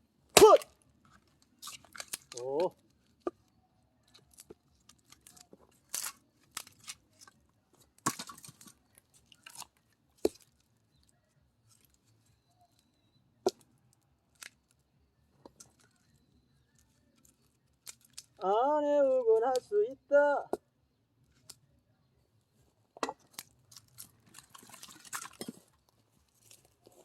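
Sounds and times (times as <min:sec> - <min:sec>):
wood cracking and splitting: 0:00.3 - 0:12.2, 0:15.4 - 0:18.6, 0:23.0 - 0:27.0.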